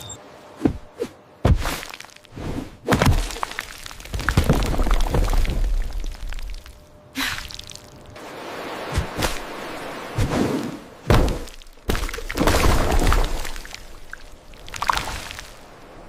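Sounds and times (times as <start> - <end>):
dull thuds and knocks: 11.1 - 12.6.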